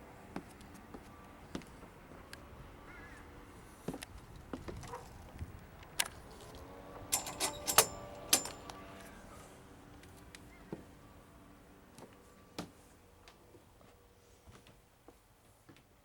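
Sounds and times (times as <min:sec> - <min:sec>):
knocks and clicks of handling: 0:07.1 - 0:08.8
metallic clinking and jangling: 0:07.1 - 0:08.8.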